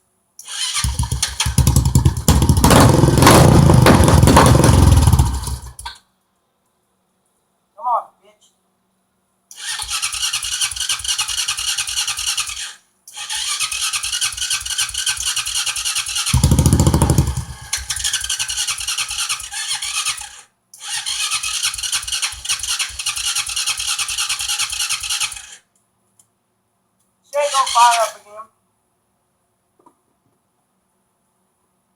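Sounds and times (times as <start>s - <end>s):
atv engine cranking: 0.4s - 6.0s, 9.5s - 25.6s, 27.4s - 28.2s.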